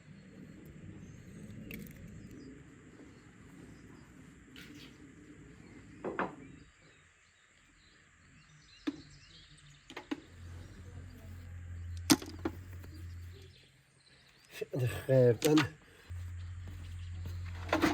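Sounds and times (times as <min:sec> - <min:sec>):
low steady hum: 0:09.6 - 0:14.4, 0:15.8 - 0:17.9.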